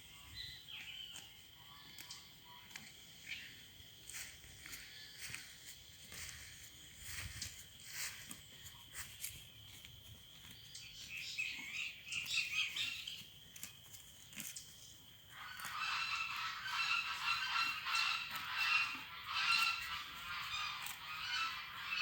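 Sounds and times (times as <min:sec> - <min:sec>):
birds chattering: 0:14.8 - 0:22.0
birds honking: 0:15.4 - 0:22.0.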